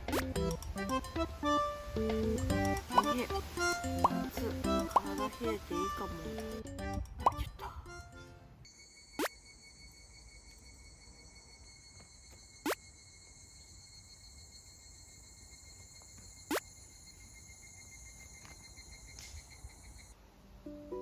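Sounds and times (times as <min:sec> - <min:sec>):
insects trilling: 0:02.4 - 0:06.6, 0:08.7 - 0:20.2.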